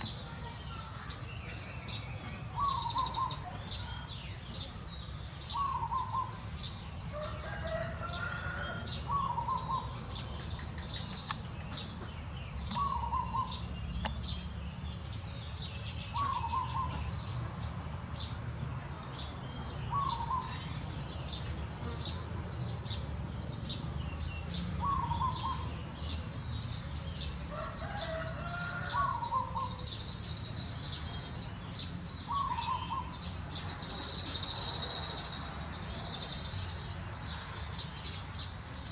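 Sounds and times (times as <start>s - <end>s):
baby birds cheeping: 0.0s - 38.9s
lower bird call: 15.0s - 17.3s, 23.4s - 36.6s.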